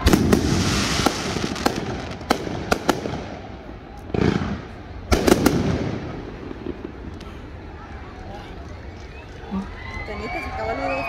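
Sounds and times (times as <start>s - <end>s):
firework cracks: 0.0s - 8.1s.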